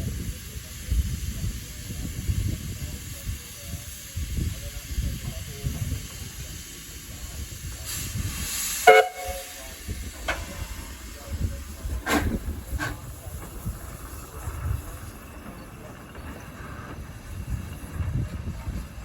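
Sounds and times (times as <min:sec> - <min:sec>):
steam hissing: 0:00.0 - 0:19.0
steam whistle toot: 0:08.8 - 0:09.6.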